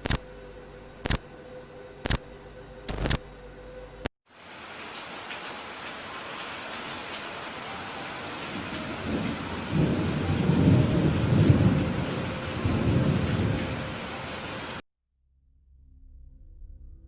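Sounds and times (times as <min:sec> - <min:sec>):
steady rain: 0:00.0 - 0:00.2, 0:04.3 - 0:14.8
rolling thunder rumble: 0:08.3 - 0:14.8.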